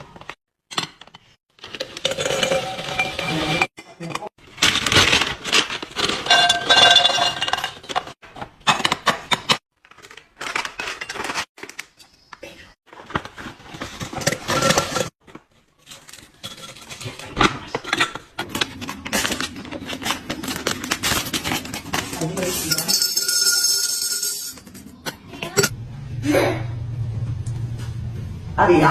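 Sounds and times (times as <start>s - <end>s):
packaging rustling: 4.4s - 6.3s, 18.4s - 22.7s.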